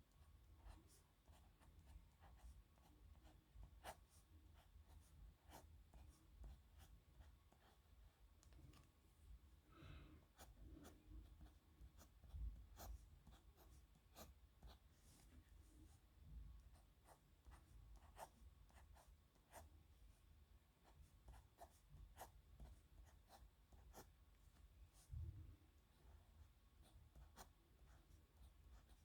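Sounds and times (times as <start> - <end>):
pen scratching on paper: 10.4 - 15.2, 16.7 - 19.7, 26.8 - 29.0.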